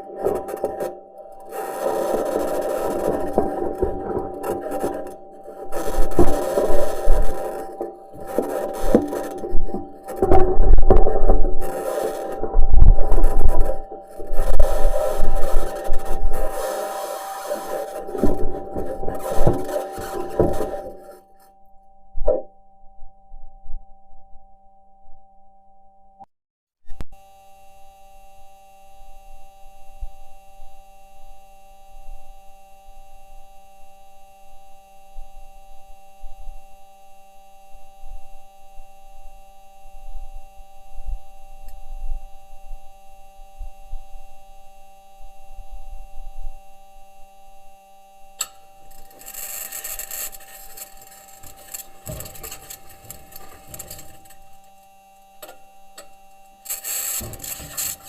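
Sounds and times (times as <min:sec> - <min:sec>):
scraping grinding rasp: 0:00.0 - 0:21.4, 0:48.4 - 0:58.0
steady whining tones: 0:00.0 - 0:22.5, 0:37.2 - 0:58.0
metal wheels crunching over rock: 0:00.1 - 0:21.4, 0:48.4 - 0:54.8, 0:55.4 - 0:58.0.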